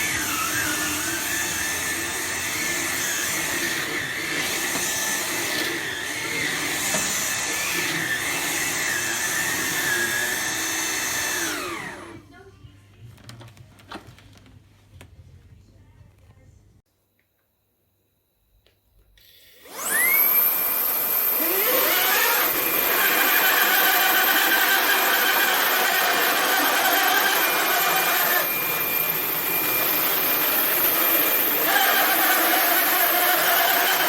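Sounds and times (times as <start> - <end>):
stick vacuum whining: 0.0 - 12.2, 19.2 - 34.0
motor winding down: 19.4 - 34.0.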